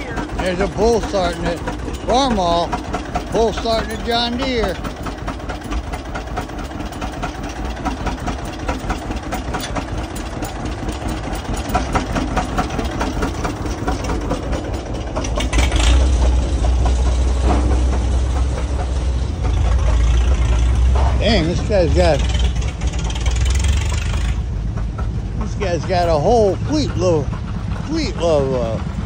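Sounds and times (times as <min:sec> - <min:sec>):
tractor engines knocking: 0:00.0 - 0:29.0
heavy low rumble: 0:10.6 - 0:29.0.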